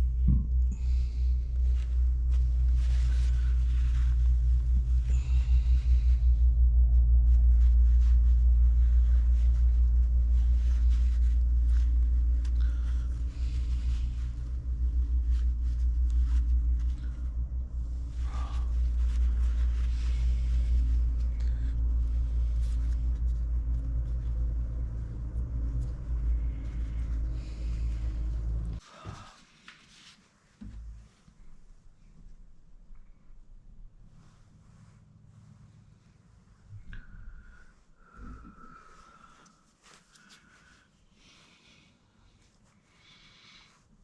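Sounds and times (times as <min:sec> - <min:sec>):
machine humming: 0:00.0 - 0:28.8.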